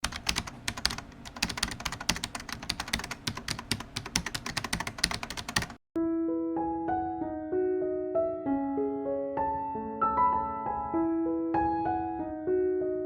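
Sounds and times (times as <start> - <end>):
rapid keyboard typing: 0.0 - 5.8
soft piano music: 6.0 - 13.0.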